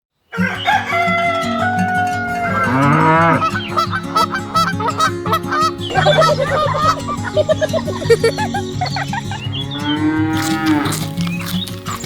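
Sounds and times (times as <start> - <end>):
farm animal calls: 0.3 - 12.0
short chirping calls: 2.2 - 12.0
rhythmic background music: 3.0 - 12.0.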